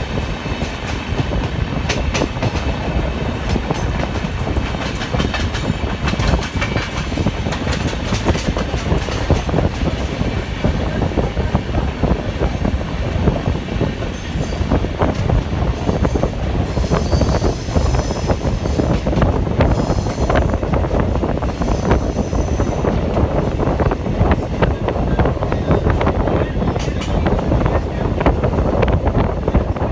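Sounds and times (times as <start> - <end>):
train wheels rumbling on track: 0.0 - 29.9
wheels clicking over rail joints: 0.6 - 11.6.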